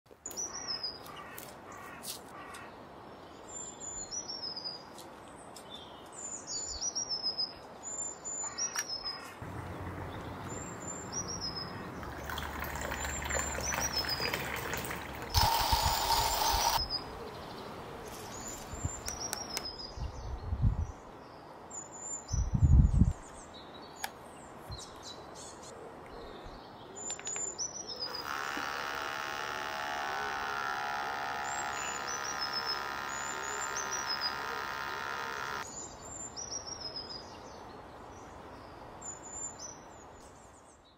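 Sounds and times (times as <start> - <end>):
espresso machine pump whirring: 12.3 - 16.8, 28.1 - 35.7
bird chirping: 24.8 - 37.6.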